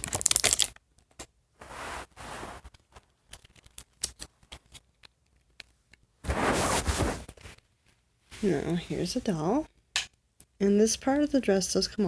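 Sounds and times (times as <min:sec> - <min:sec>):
packaging rustling: 0:00.0 - 0:00.8, 0:02.6 - 0:05.6.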